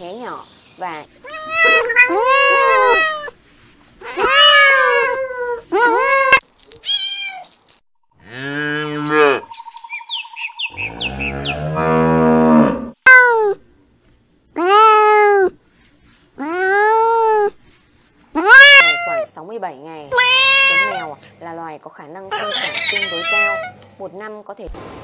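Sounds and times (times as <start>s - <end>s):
kittens meowing: 1.2s - 3.4s, 4.0s - 7.5s, 18.4s - 19.3s, 20.1s - 21.2s, 22.3s - 23.8s.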